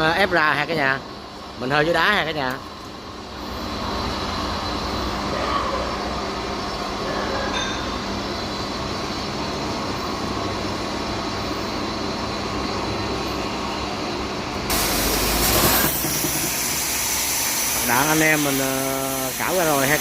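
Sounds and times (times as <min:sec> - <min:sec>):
gas torches hissing: 0:14.7 - 0:20.0.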